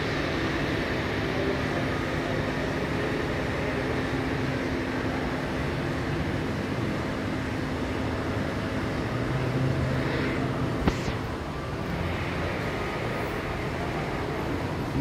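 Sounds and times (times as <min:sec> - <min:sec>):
indoor background hum: 0:00.0 - 0:15.0
sharp click: 0:10.8 - 0:11.3.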